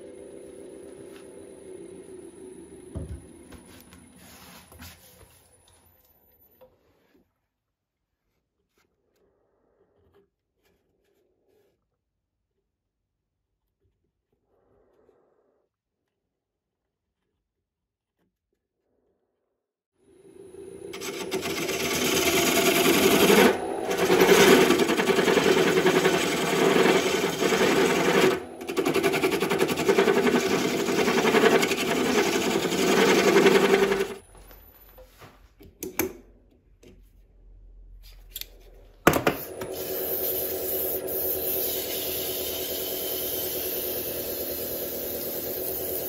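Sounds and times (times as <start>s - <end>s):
wood lathe cutting wood: 20.8s - 34.2s, 39.5s - 46.0s.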